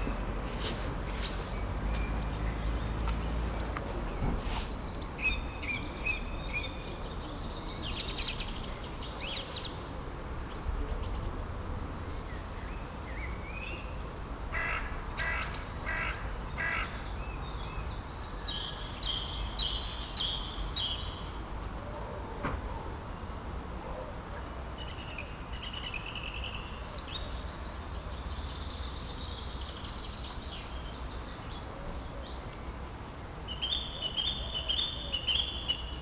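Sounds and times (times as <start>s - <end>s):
birds singing and chirping: 1.2s - 14.0s, 14.6s - 21.8s, 24.5s - 36.0s
repeated bird calls: 14.6s - 21.5s.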